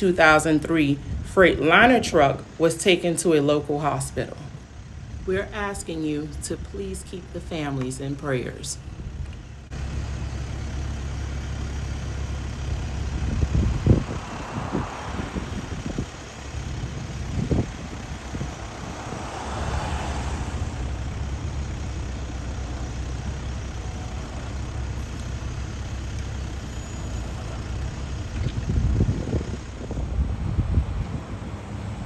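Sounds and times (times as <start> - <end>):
highway traffic rumble: 0.0 - 32.0
vehicle passing: 12.3 - 32.0.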